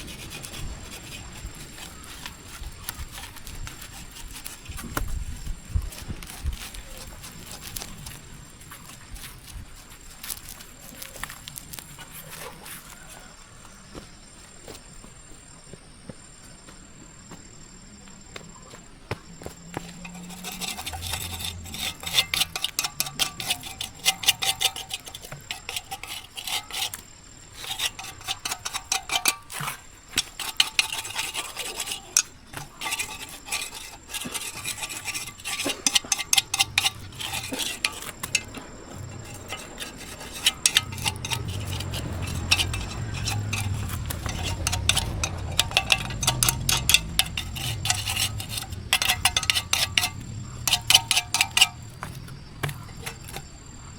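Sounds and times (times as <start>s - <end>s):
hand tool scraping: 0.0s - 13.8s, 19.4s - 53.9s
light clinks: 27.6s - 53.7s
low hum: 36.7s - 53.4s.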